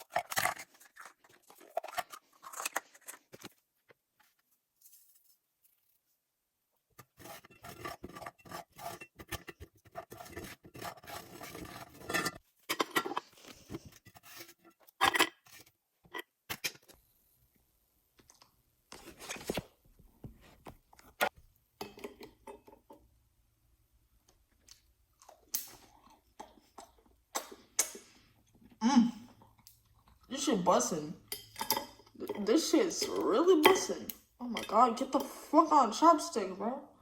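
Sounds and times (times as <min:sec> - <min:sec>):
utensils scraping food container: 0:07.0 - 0:15.6.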